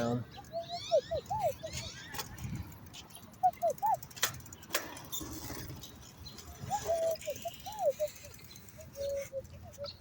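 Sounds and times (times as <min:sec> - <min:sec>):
whistled bird calls: 0:00.3 - 0:02.2, 0:03.4 - 0:04.0, 0:06.6 - 0:10.0.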